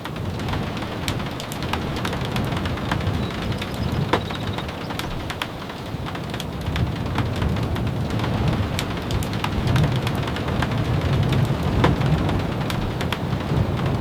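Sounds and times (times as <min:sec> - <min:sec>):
steady rain falling: 0:00.0 - 0:14.0
sharp ticks and taps: 0:01.0 - 0:07.5.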